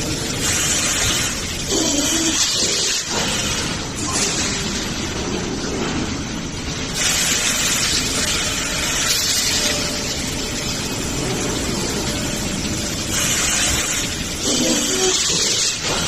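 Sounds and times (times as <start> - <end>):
loud machinery hiss: 0.0 - 5.1, 6.9 - 16.0
machinery low rumble: 8.0 - 14.7.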